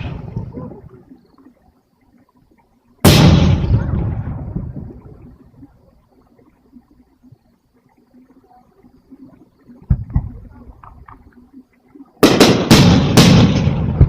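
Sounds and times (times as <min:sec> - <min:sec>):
firework boom: 0:03.0 - 0:05.2, 0:12.2 - 0:14.0.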